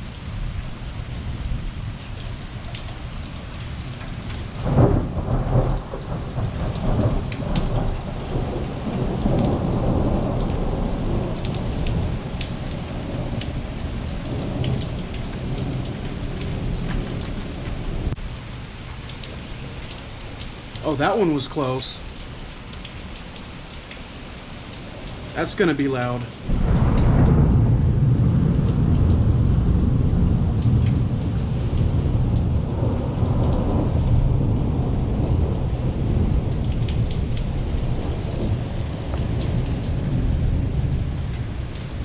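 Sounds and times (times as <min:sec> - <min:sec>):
heavy rain falling: 0:00.0 - 0:42.0
thunder rumbling: 0:04.6 - 0:18.2, 0:26.4 - 0:42.0.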